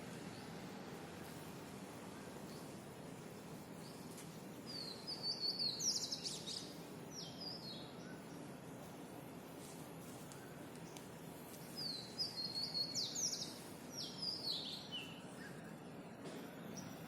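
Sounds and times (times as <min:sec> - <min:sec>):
steady background hum: 0:00.0 - 0:17.0
songbird chirping and trilling: 0:03.8 - 0:08.5, 0:10.3 - 0:15.8.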